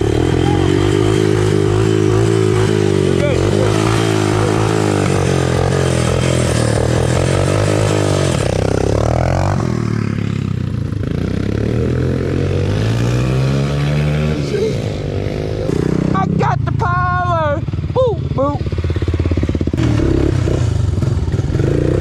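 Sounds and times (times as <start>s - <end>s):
small engine revving: 0.0s - 16.2s.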